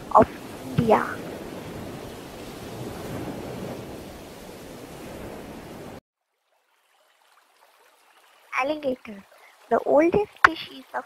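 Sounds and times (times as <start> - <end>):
sea waves rushing: 0.0 - 6.0
wind: 0.0 - 11.0.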